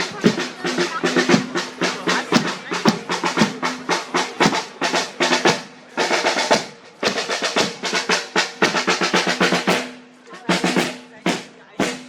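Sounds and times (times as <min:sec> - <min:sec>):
bass drum beating: 0:00.0 - 0:05.9
snare drum rolls: 0:00.0 - 0:12.0.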